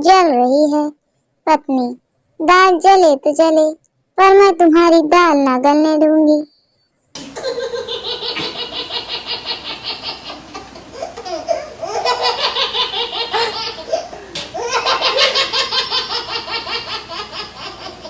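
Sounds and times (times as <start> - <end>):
high-pitched laughter: 7.2 - 18.0.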